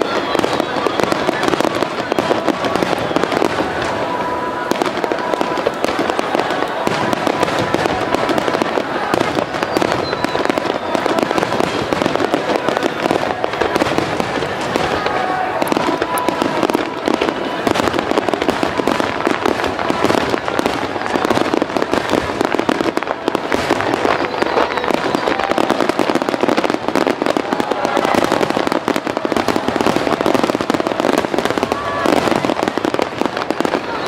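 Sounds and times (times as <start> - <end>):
underwater fireworks crackling: 0.0 - 34.0.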